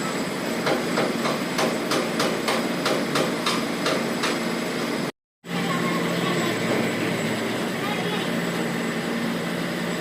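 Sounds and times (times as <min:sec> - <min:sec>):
steady engine hum: 0:00.0 - 0:10.0
hammer striking metal: 0:00.6 - 0:04.4.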